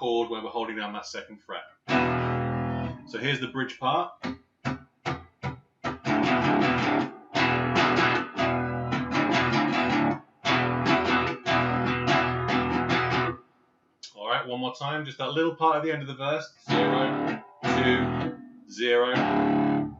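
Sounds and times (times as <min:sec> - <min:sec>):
electric guitar power chords: 0:01.9 - 0:03.2, 0:05.1 - 0:13.4, 0:16.7 - 0:19.9.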